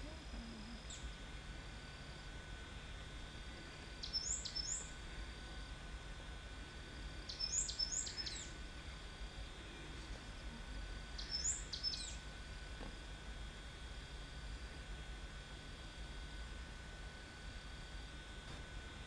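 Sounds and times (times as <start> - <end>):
bird calling with whistles: 4.0 - 4.9, 7.3 - 8.6, 11.2 - 12.2.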